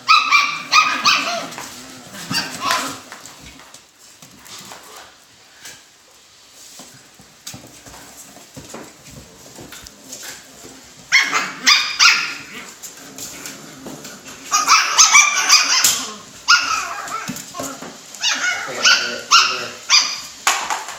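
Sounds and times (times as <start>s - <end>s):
puppies yipping and whimpering: 14.4s - 20.3s.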